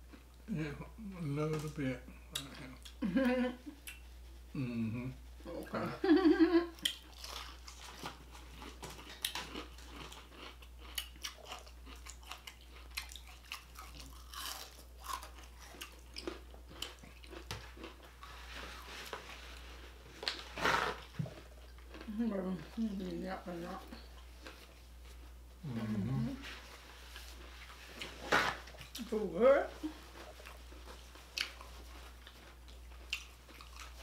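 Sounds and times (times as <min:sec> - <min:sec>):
chewing with wet clicks and crunches: 0:06.8 - 0:18.3, 0:20.2 - 0:23.2, 0:30.2 - 0:34.0.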